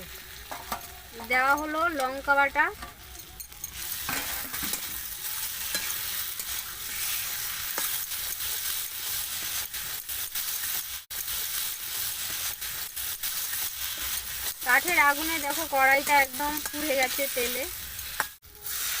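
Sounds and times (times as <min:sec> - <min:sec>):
food sizzling in hot oil: 0:00.0 - 0:19.0
spatula scraping a pan: 0:02.8 - 0:19.0.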